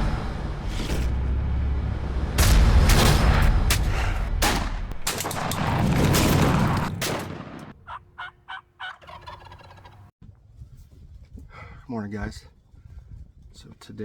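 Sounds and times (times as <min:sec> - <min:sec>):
booming sound effect hits: 0:02.2 - 0:06.8
turkey gobbling: 0:07.8 - 0:10.1.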